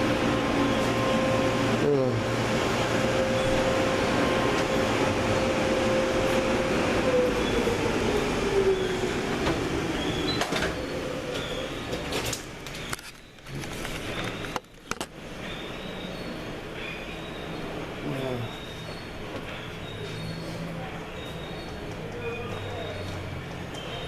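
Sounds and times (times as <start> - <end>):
machinery whine: 0.0 - 24.0.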